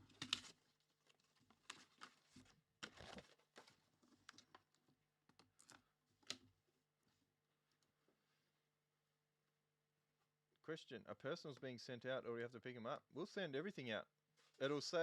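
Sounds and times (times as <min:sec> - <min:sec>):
packaging clicks and rustles: 0:00.0 - 0:04.8, 0:05.4 - 0:06.4.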